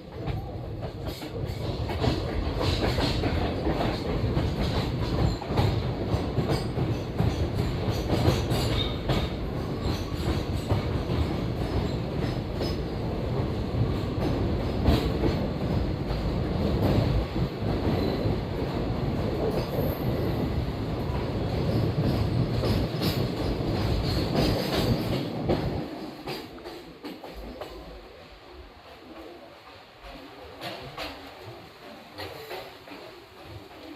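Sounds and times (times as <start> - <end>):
train rumble: 0.0 - 33.9.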